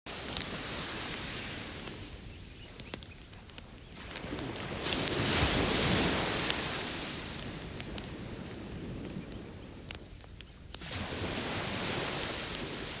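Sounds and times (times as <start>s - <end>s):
campfire crackling and popping: 0.1s - 13.0s
wave washing up beach: 4.0s - 9.9s, 10.8s - 13.0s.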